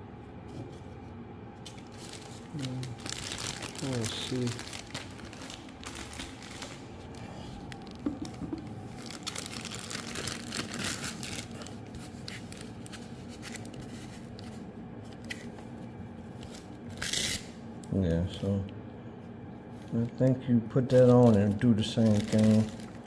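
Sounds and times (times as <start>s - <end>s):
packaging crinkling: 1.6s - 15.6s, 20.9s - 23.0s.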